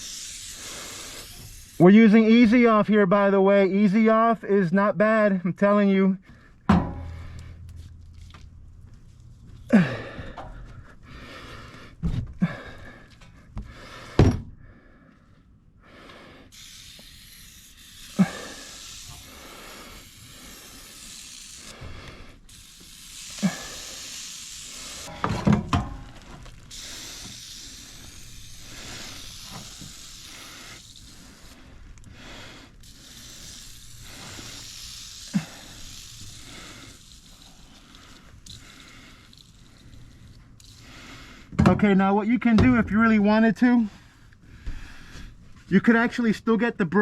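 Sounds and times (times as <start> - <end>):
aerosol can spraying: 0.0 - 2.4, 16.5 - 25.4, 26.1 - 41.5.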